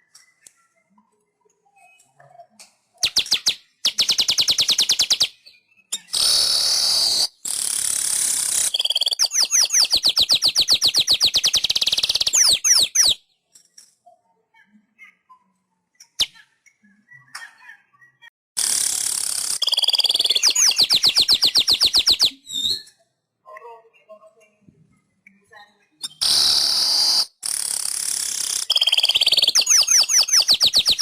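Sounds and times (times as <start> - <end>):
faint bird chirps: 0.0 - 7.3, 8.3 - 18.3, 19.4 - 23.2, 24.0 - 27.4, 28.0 - 31.0
weaver bird singing trills: 8.7 - 13.2, 19.6 - 22.9, 28.5 - 31.0.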